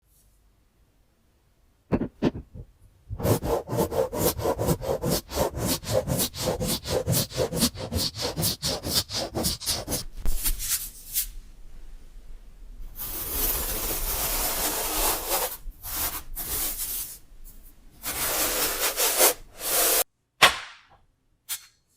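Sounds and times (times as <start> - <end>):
rapid scratching strokes: 2.2 - 11.2.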